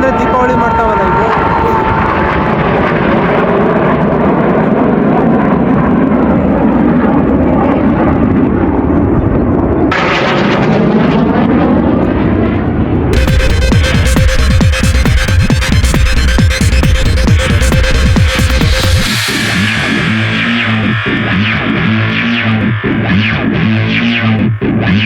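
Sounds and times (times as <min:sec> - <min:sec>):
jet aircraft roaring past: 0:00.0 - 0:25.0
electronic dance music: 0:13.2 - 0:25.0.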